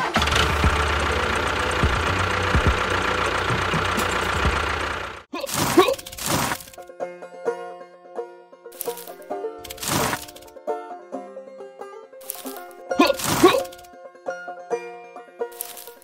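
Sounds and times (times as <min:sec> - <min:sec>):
small motor rattling: 0:00.0 - 0:05.3, 0:06.0 - 0:06.8, 0:08.8 - 0:10.5, 0:12.2 - 0:13.9
music: 0:06.8 - 0:09.7, 0:10.5 - 0:13.0, 0:13.9 - 0:15.6.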